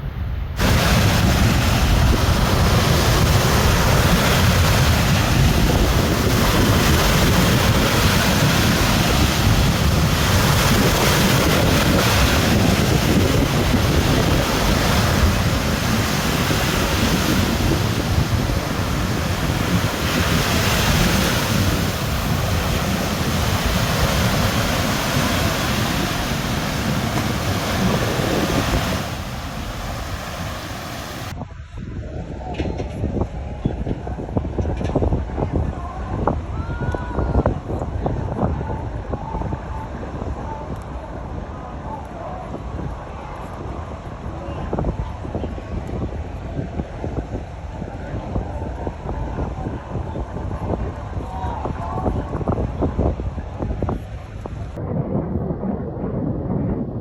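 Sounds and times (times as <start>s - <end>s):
wind buffeting microphone: 0.0s - 57.0s
ocean surf breaking: 0.6s - 31.4s.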